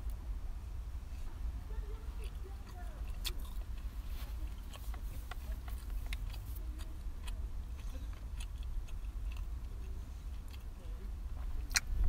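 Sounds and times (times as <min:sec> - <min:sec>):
chewing crunches: 0:02.1 - 0:12.0
mouth clicks: 0:11.6 - 0:12.0.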